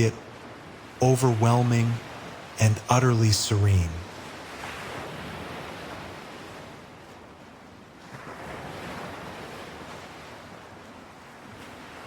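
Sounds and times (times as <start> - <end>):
ocean waves washing on shore: 0.0 - 12.0.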